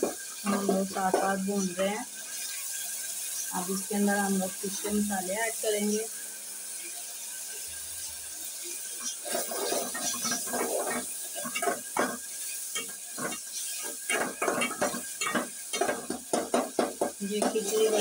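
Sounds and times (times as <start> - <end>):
food sizzling in hot oil: 0.0 - 18.0
metal spoon scraping a pot: 9.0 - 18.0.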